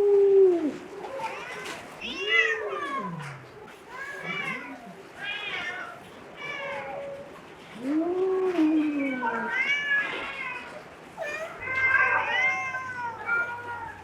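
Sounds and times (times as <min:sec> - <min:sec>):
cats meowing: 0:00.0 - 0:14.0.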